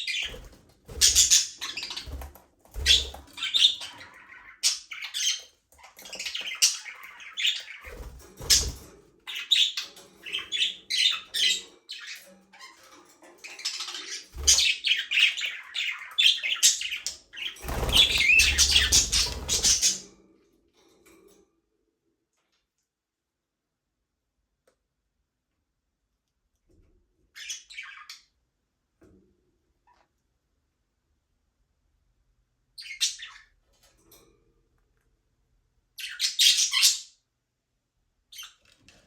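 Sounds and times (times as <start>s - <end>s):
budgerigars chirping and chattering: 0.0s - 20.1s, 27.4s - 28.3s, 32.8s - 33.6s, 36.0s - 37.2s.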